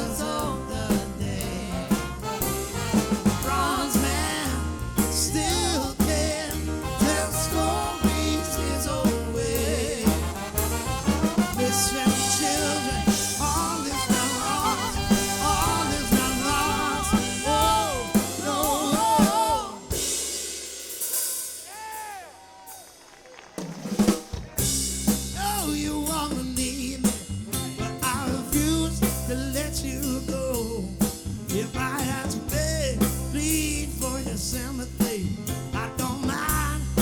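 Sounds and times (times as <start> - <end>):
pulsing bass line: 0.0 - 19.7
sliding notes: 0.0 - 20.2
live soul band playing: 0.0 - 20.5, 24.2 - 37.0
drums: 0.0 - 37.0
melodic lead line: 10.3 - 20.1.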